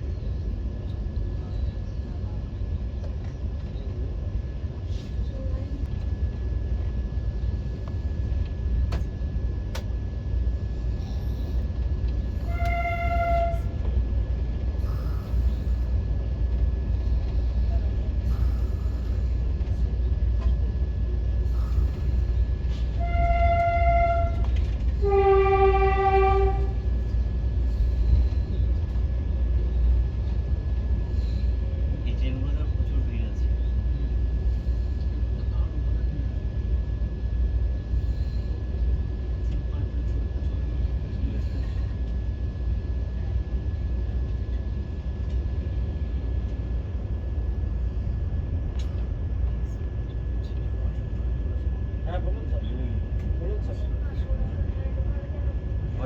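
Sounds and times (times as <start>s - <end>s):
low train rumble: 0.0s - 56.0s
high whine: 12.1s - 14.1s
train horn: 12.4s - 13.9s, 23.0s - 26.9s.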